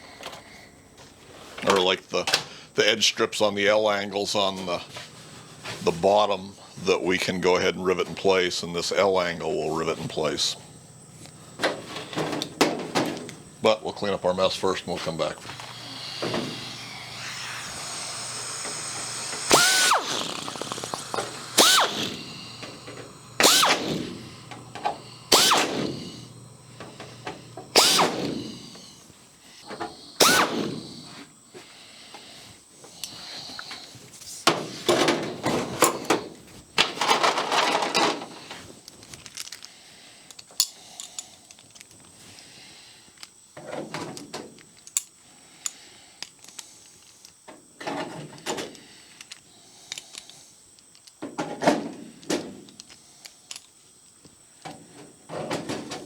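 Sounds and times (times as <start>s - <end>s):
hand drill spinning in bursts: 14.4s - 29.1s, 29.9s - 31.1s.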